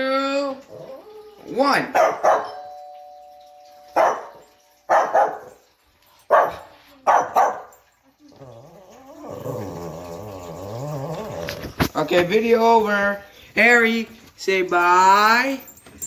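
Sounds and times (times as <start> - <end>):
dog growling: 0.6 - 1.6, 8.2 - 12.0
dog barking: 1.9 - 2.6, 4.0 - 5.6, 6.3 - 7.9
doorbell chime: 2.2 - 4.9.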